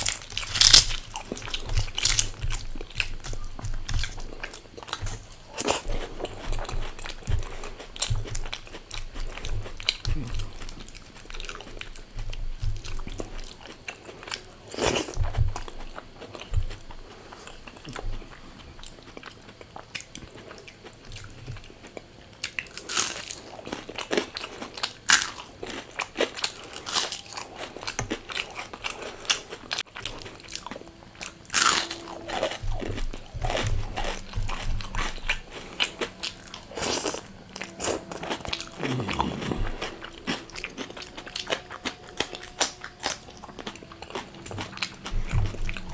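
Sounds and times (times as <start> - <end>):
crunching bites of fried food: 0.0 - 6.4, 22.5 - 30.7
person chewing: 0.0 - 45.9.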